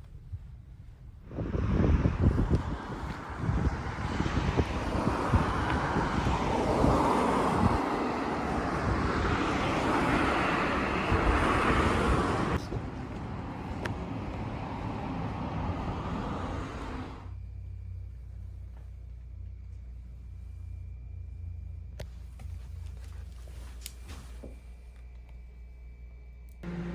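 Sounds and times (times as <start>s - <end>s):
steady traffic noise: 0.1s - 25.3s, 26.5s - 26.9s
cars passing: 1.3s - 17.4s, 26.6s - 26.9s.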